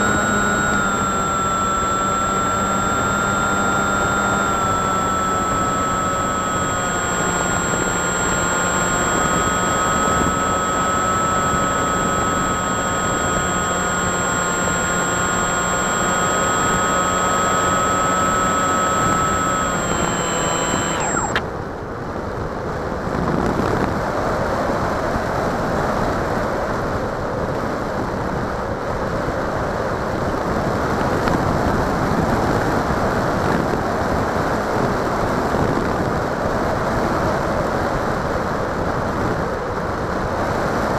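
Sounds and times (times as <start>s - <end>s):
model plane motor whine: 0.0s - 21.5s.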